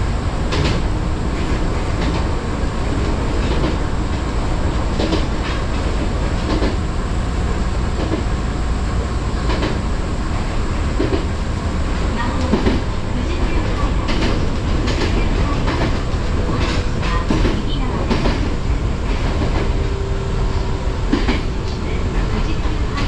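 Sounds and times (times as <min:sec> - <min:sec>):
train low rumble: 0:00.0 - 0:23.0
wheels clacking over rail joints: 0:09.4 - 0:19.8, 0:21.1 - 0:23.0.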